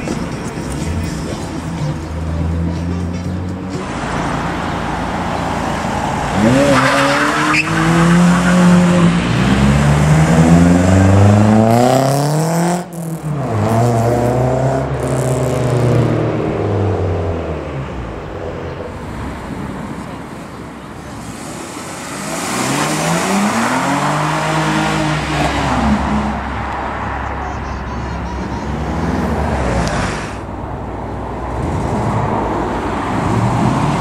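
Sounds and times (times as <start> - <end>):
cars accelerating through gears: 3.6 - 18.0, 21.2 - 27.3.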